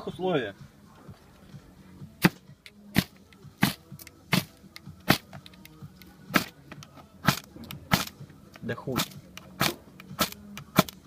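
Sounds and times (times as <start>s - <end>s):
sharp strikes: 2.2s - 5.3s, 7.2s - 8.2s, 8.9s - 11.0s.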